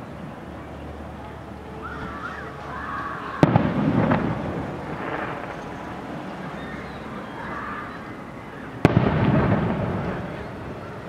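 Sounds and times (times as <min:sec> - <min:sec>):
firework burst rumble: 0:03.4 - 0:07.2, 0:08.6 - 0:11.0.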